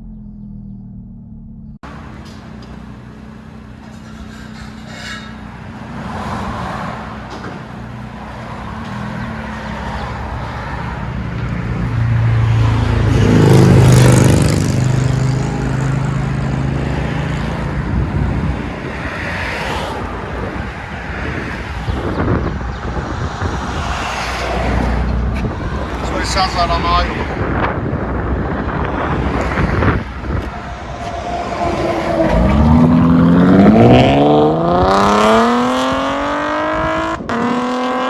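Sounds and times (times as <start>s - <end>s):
car exhaust drone: 0.0s - 6.2s.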